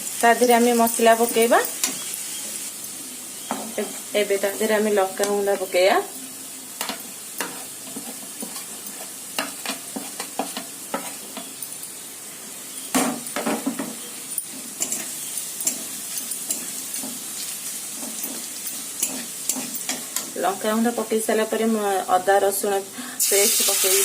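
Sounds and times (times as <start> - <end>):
onions sizzling in hot oil: 0.0 - 24.0
spatula scraping and tapping pan: 6.8 - 11.7, 13.0 - 20.3.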